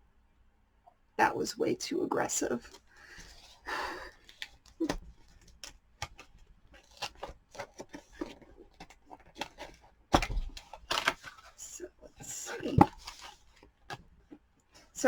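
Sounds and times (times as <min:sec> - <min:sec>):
cardboard scraping rustle: 0:04.3 - 0:15.0.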